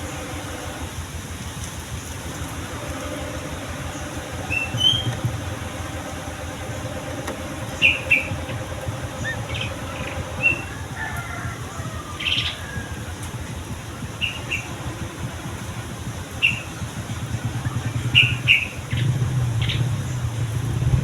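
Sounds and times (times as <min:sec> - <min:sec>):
low rumble: 0:00.0 - 0:21.0
bird whistled notes: 0:03.8 - 0:05.5, 0:07.7 - 0:13.3, 0:14.1 - 0:14.9, 0:16.2 - 0:19.9.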